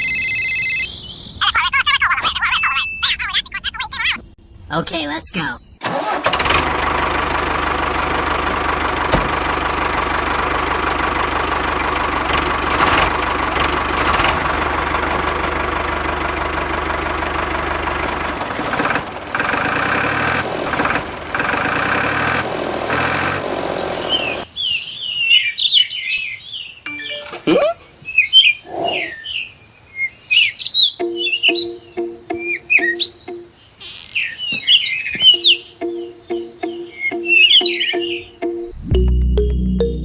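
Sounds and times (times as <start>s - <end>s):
tractor engine running: 5.8s - 24.5s, 35.2s - 40.0s
birds chirping: 23.8s - 39.9s.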